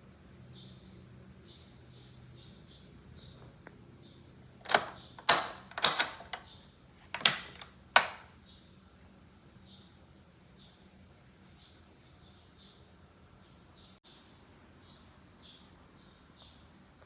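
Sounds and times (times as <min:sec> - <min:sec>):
box fan mechanical clicks: 0:04.6 - 0:08.3.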